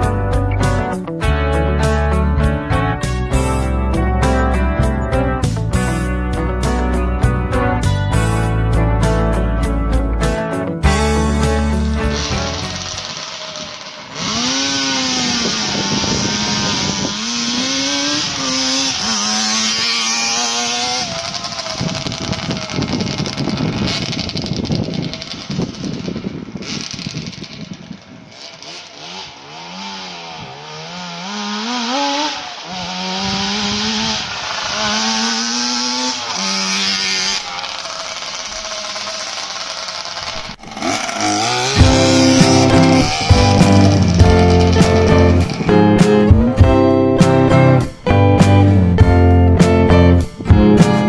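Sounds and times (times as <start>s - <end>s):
two-stroke engine revving: 11.0s - 51.0s.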